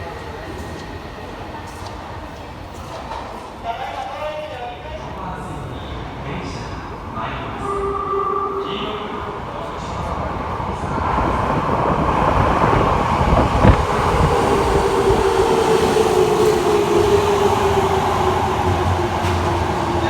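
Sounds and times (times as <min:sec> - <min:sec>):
subway train motor whine: 0:06.8 - 0:20.0.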